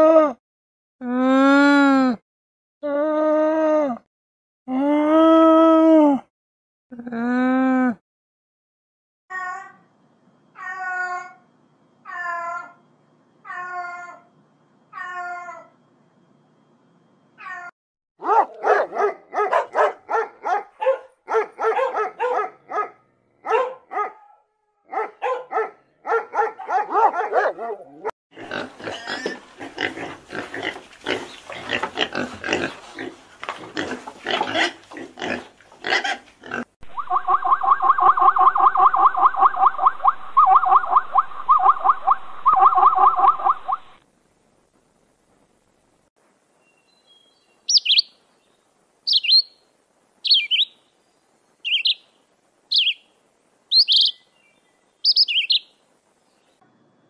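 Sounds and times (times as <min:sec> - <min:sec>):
cat meowing: 0:15.0 - 0:15.6
pulsing animal call: 0:36.8 - 0:44.0.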